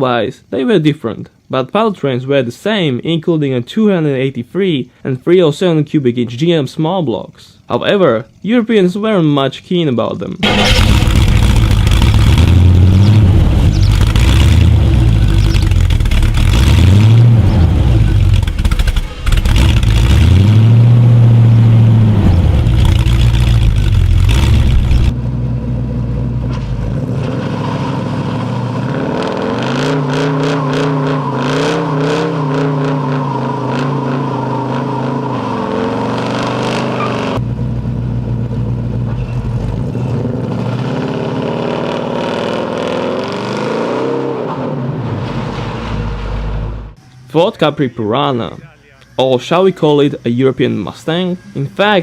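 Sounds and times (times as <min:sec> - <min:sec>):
car engine revving: 0:10.4 - 0:47.0.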